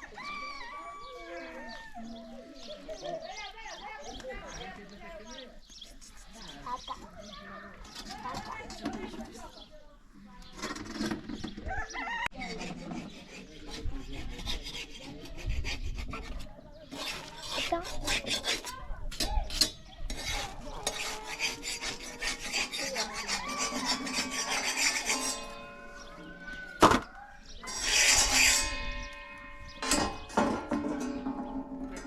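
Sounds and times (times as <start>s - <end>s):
rasping scraping strokes: 12.3s - 32.0s.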